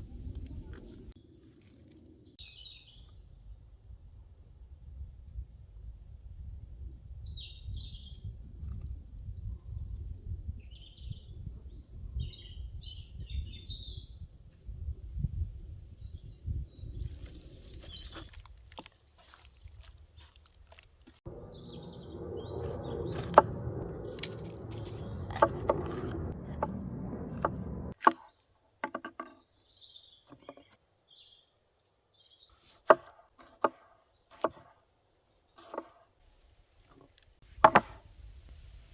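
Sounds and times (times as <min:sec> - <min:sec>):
small birds chirping: 0:00.3 - 0:03.4, 0:05.8 - 0:26.1, 0:27.3 - 0:37.2
low outdoor rumble: 0:21.1 - 0:28.0
chopping on a wooden board: 0:27.4 - 0:29.4, 0:32.8 - 0:34.8, 0:35.6 - 0:36.0, 0:37.6 - 0:38.0.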